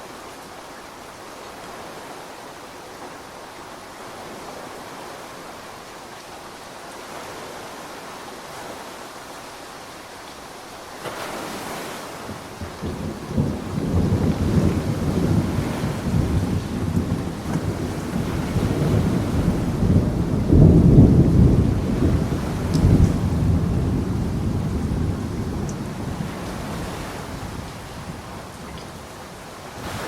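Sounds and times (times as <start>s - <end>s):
steady rain falling: 0.0s - 30.0s
deep rumble of thunder: 12.2s - 29.2s.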